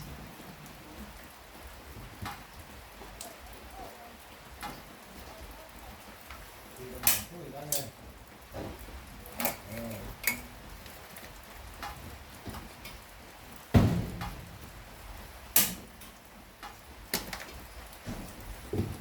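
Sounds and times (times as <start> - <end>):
steady rain falling: 0.0 - 19.0
heavy thump: 13.7 - 14.7.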